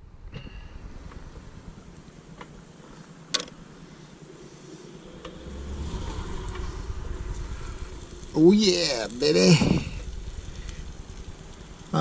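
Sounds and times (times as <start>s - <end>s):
gas stove burning rumble: 0.2s - 12.0s.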